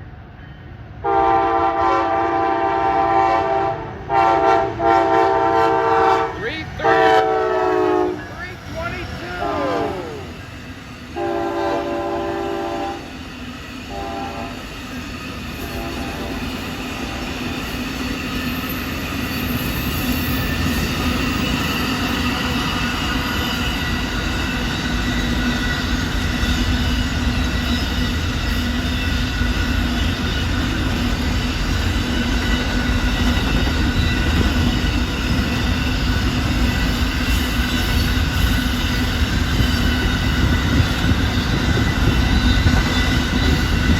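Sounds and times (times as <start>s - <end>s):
train rumbling on rails: 0.0s - 43.9s
locomotive horn blasts: 1.0s - 10.2s, 11.2s - 13.1s, 13.9s - 14.6s, 15.6s - 17.2s.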